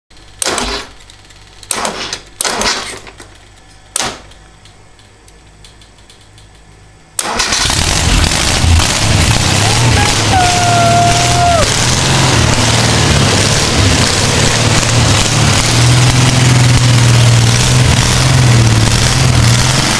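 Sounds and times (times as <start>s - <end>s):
air-cooled car engine running: 7.1s - 19.9s.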